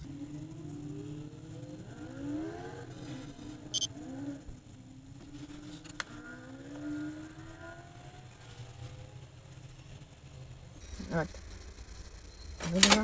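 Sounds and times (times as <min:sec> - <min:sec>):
car engines accelerating: 0:00.0 - 0:13.0
high chirp: 0:03.7 - 0:03.9
sharp click: 0:12.6 - 0:13.0.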